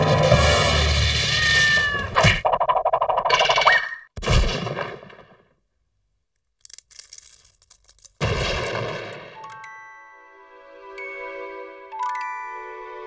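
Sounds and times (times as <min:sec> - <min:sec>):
cartoon rising whistle: 0:01.3 - 0:02.1.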